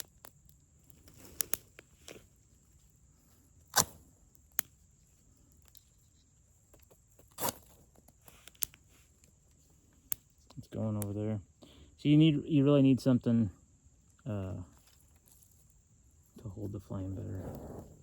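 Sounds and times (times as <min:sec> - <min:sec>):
fire steel scraping: 0:00.2 - 0:05.8, 0:14.7 - 0:18.0
small clicks: 0:06.7 - 0:09.4.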